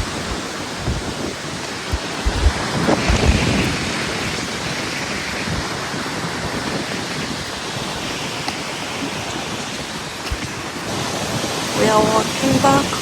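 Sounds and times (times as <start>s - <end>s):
low buffeting thumps: 0.0s - 3.6s
wind blowing on microphone: 0.0s - 13.0s.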